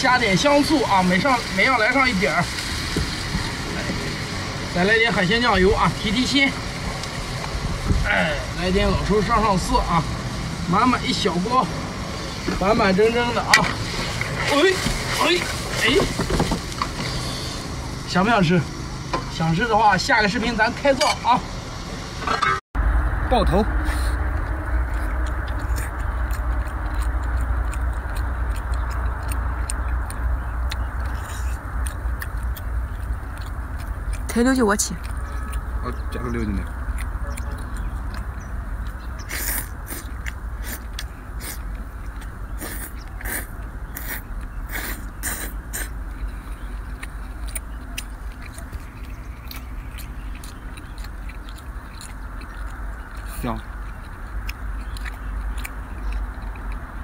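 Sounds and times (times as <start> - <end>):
low rumble: 0.0 - 57.0
wet chewing and lip-smacking: 23.6 - 57.0.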